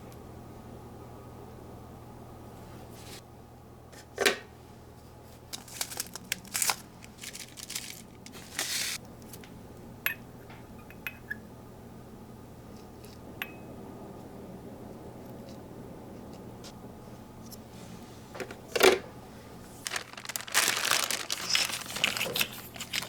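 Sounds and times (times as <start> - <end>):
crinkling and rustling: 5.3 - 9.0, 19.6 - 23.0.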